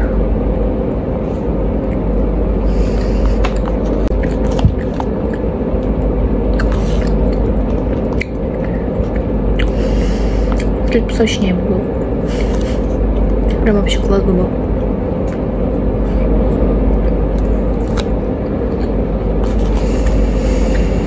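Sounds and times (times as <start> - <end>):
machinery hum: 0.0 - 21.0
person chewing: 2.7 - 10.9, 14.8 - 21.0.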